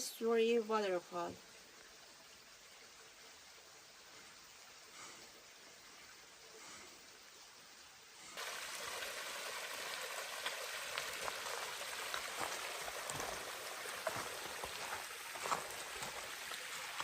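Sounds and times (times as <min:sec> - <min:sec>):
waterfall rushing: 0:08.4 - 0:17.0.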